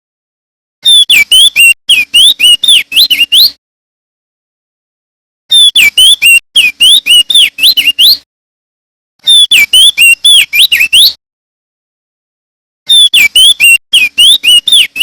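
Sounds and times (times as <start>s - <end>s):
bird singing whistled notes: 0.8s - 3.6s, 5.5s - 8.2s, 9.2s - 11.2s, 12.9s - 15.0s.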